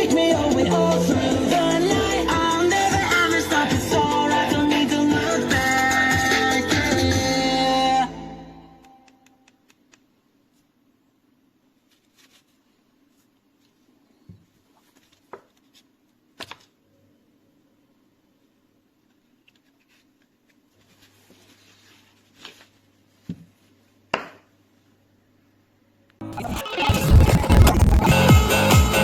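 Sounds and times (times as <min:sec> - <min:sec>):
electronic dance music: 0:26.2 - 0:29.0.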